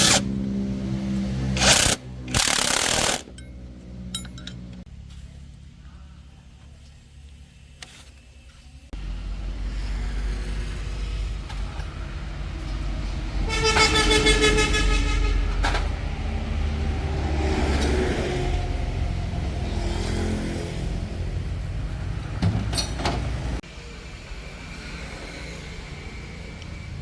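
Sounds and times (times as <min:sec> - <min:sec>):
truck engine rumbling: 0:00.0 - 0:05.0
vehicle horn: 0:13.4 - 0:15.7.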